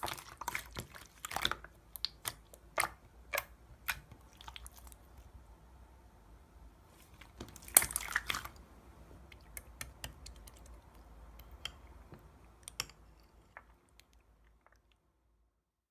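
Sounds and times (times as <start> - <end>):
slime squished by hand: 0.0 - 5.3, 7.0 - 8.6.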